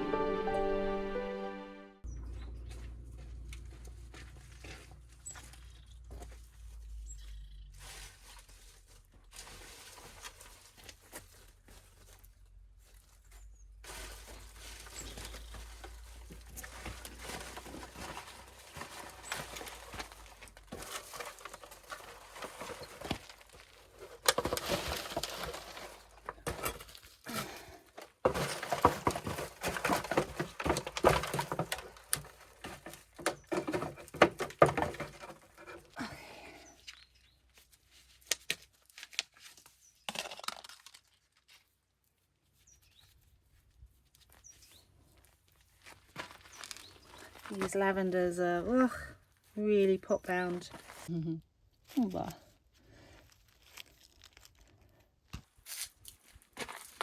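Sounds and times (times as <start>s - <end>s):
hand tool digging soil: 13.8s - 37.1s.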